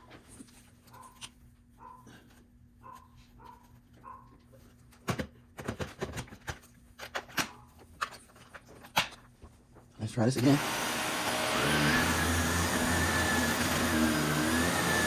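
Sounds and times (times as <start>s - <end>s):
vacuum cleaner running: 10.2s - 15.0s.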